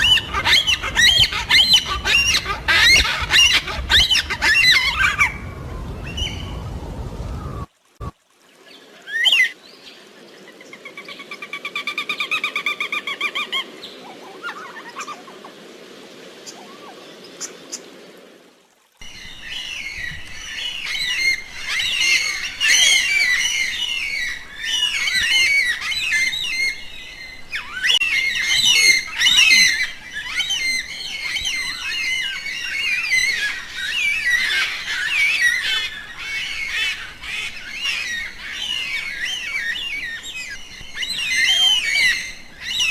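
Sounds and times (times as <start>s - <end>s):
trilled bird call: 0.0s - 6.6s
birds chirping and squawking: 0.0s - 7.6s, 27.5s - 42.9s
low rushing noise: 0.0s - 8.2s.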